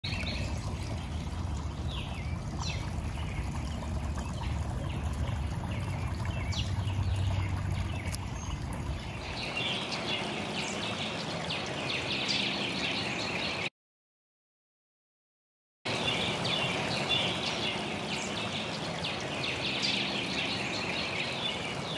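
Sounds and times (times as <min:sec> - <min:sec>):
low steady rumble: 0:00.0 - 0:09.7
small birds chirping: 0:00.0 - 0:13.6.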